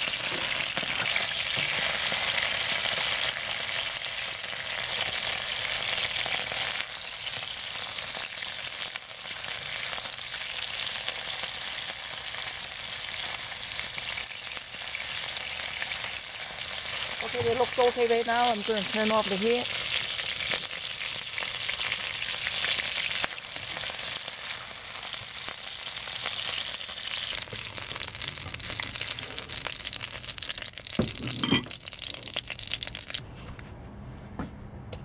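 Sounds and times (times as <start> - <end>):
chicken sizzling in hot oil: 0.0 - 33.2.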